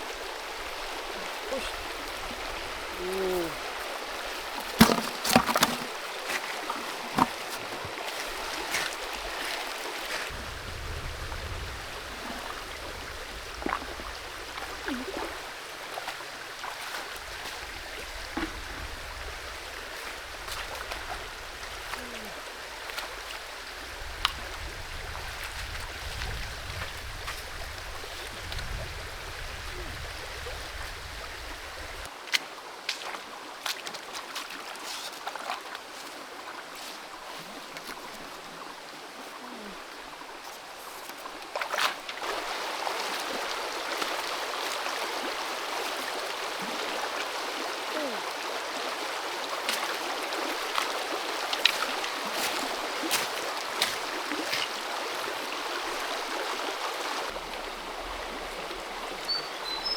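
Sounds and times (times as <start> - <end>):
creek water running: 0.0 - 59.9.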